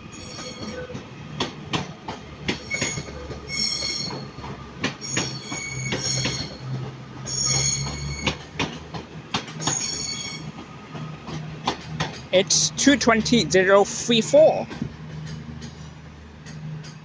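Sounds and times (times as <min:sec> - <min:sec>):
train wheels squealing: 0:00.0 - 0:01.0, 0:02.5 - 0:08.5, 0:09.6 - 0:10.6
wheels clicking over rail joints: 0:00.0 - 0:17.0.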